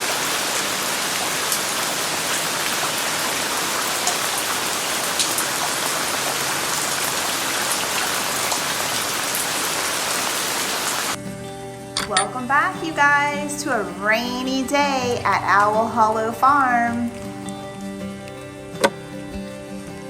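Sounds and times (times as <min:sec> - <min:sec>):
raindrops ticking: 0:00.0 - 0:10.0, 0:14.5 - 0:19.0
steady rain hiss: 0:00.0 - 0:11.2.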